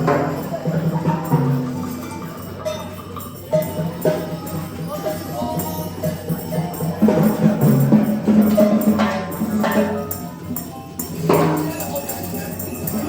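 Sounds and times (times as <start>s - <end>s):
sharp ringing percussion strikes: 0.0s - 13.0s
tambourine-like jingling: 0.0s - 13.0s.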